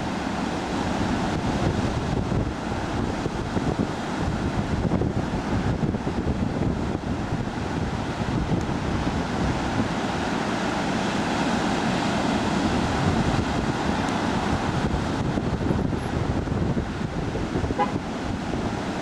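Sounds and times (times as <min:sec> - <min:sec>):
surf breaking in a roar: 0:00.0 - 0:19.0
wind buffeting the microphone: 0:00.0 - 0:19.0.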